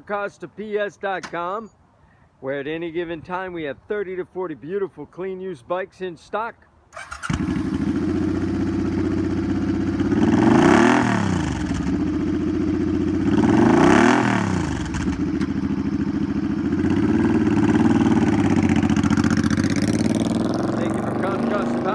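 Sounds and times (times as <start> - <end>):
motorcycle engine idling: 7.0 - 21.9
motorcycle engine revving: 7.0 - 21.9.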